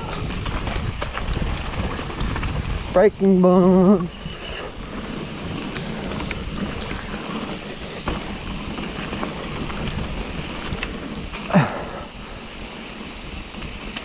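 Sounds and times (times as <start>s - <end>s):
bike tyre noise: 0.0s - 14.0s
wind rush on microphone: 0.0s - 14.0s
bike rattling over rocks: 0.2s - 4.0s.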